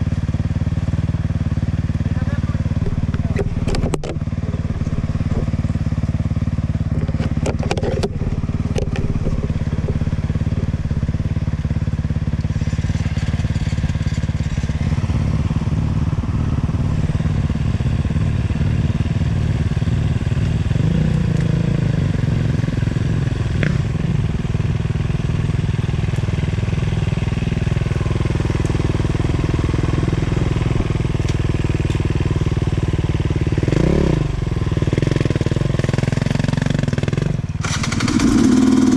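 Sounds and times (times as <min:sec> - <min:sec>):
motorcycle engine running: 0:00.0 - 0:38.9
sharp clicks and knocks: 0:02.8 - 0:05.5, 0:06.9 - 0:10.7.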